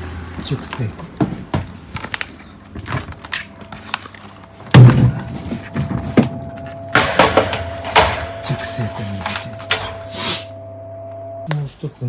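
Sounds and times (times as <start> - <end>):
heavy thump: 4.7 - 6.4.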